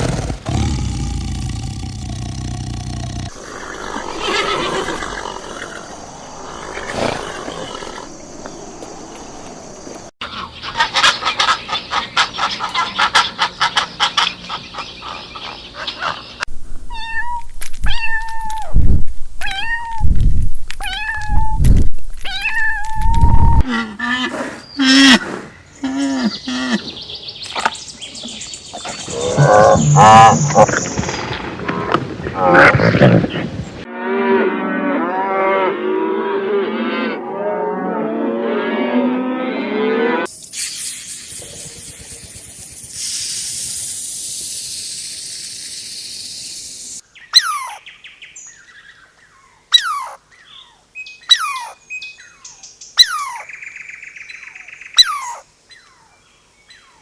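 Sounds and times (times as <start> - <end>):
low animal calls: 0.5 - 10.1, 28.8 - 31.1
fast pulsed animal call: 3.3 - 10.1, 29.1 - 30.9, 40.8 - 46.9.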